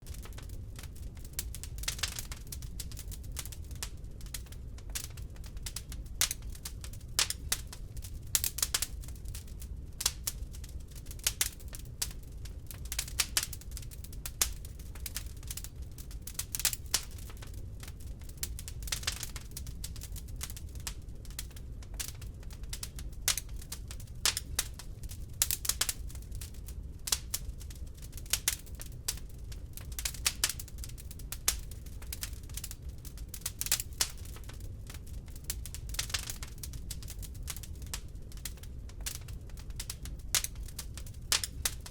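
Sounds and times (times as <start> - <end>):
low steady rumble: 0.0 - 41.9
wood fire crackling: 0.0 - 41.9.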